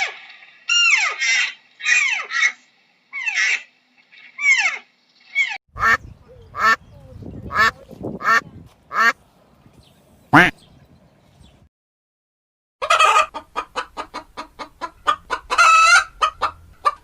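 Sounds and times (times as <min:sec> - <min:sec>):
high falling animal calls: 0:00.0 - 0:05.6
ducks quacking: 0:05.8 - 0:09.2, 0:10.4 - 0:10.6.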